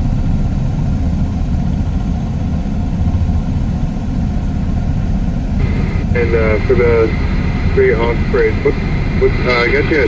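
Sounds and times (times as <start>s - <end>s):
engine idling: 3.5s - 10.0s.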